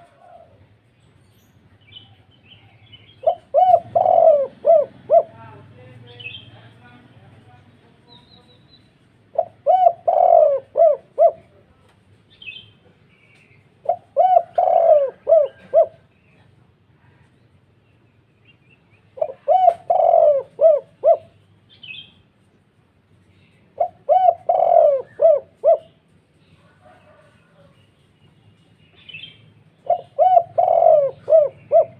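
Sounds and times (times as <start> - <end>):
dove cooing: 0.0 - 0.8, 2.9 - 5.6, 9.3 - 11.6, 13.8 - 16.3, 19.1 - 21.5, 23.7 - 27.8, 29.2 - 31.9
small bird chirping: 21.4 - 22.3.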